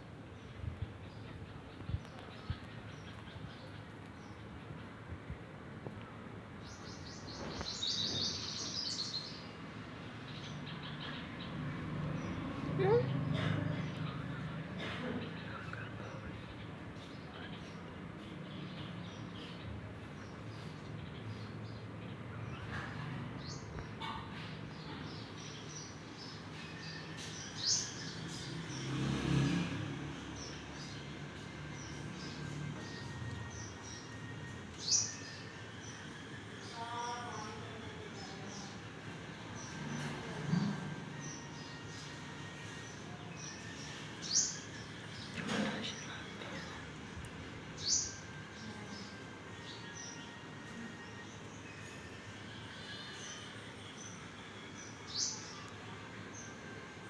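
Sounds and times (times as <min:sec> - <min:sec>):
small birds chirping: 0:06.6 - 0:29.3, 0:30.1 - 0:52.0.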